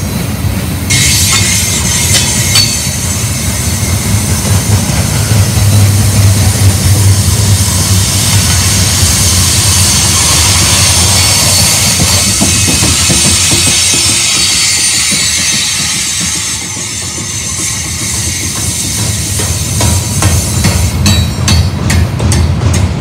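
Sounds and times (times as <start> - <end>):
train wheels rumbling on rails: 0.0 - 23.0
wheels squealing: 7.0 - 19.4.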